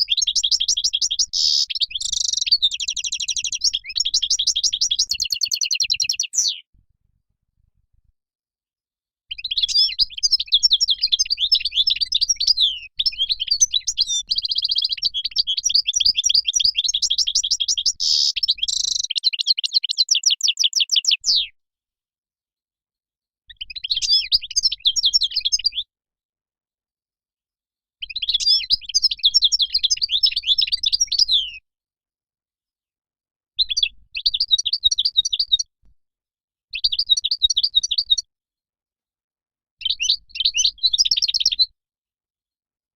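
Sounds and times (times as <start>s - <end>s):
goldfinch twittering song: 0.0s - 6.7s, 9.3s - 21.4s, 23.5s - 25.9s, 28.0s - 31.6s, 36.8s - 38.2s, 39.8s - 41.7s.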